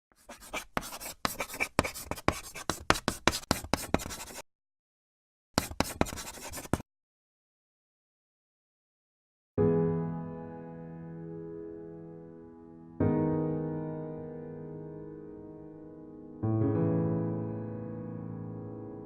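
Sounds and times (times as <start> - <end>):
drawing tool scratching paper: 0.1 - 4.4, 5.6 - 6.8.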